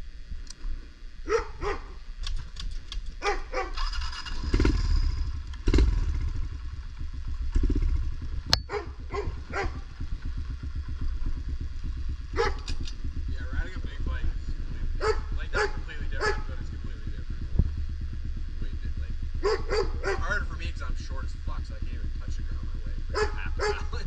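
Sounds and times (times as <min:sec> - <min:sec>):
dog barking: 0:01.3 - 0:02.0, 0:03.2 - 0:03.8, 0:08.7 - 0:09.8, 0:12.3 - 0:12.7, 0:15.0 - 0:16.7, 0:19.4 - 0:20.4, 0:23.1 - 0:24.0
motorbike engine idling: 0:01.3 - 0:24.0.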